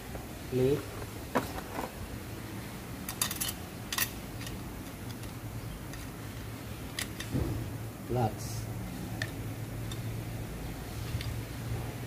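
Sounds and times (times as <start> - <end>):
steady low hum: 0.0 - 12.0
metal clutch plates clinking: 3.1 - 6.1.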